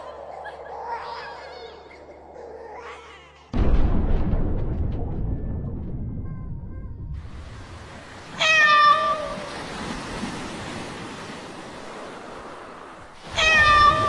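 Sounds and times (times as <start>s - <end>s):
cat meowing: 8.4s - 9.5s, 13.3s - 14.0s.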